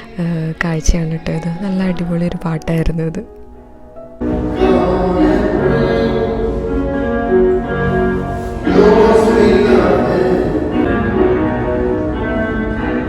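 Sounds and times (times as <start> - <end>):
instrumental accompaniment: 1.2 - 13.0
person singing live: 4.5 - 6.7, 8.6 - 10.9.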